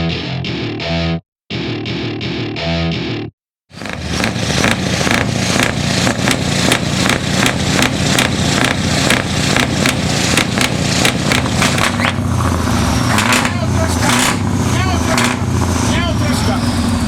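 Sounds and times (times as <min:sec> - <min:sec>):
truck engine rumbling: 0:03.7 - 0:17.0.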